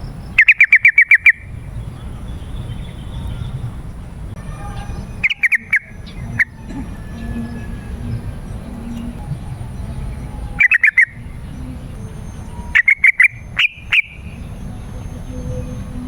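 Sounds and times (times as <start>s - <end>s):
bird calling bubbly notes: 4.9s - 16.0s.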